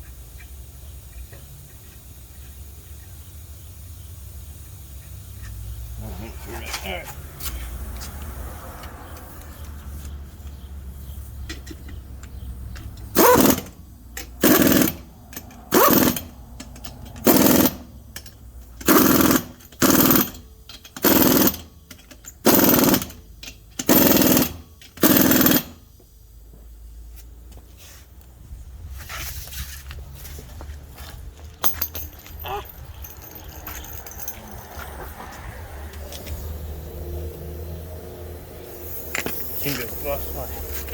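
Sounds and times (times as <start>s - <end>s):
impact wrench bursts: 9.0s - 26.0s.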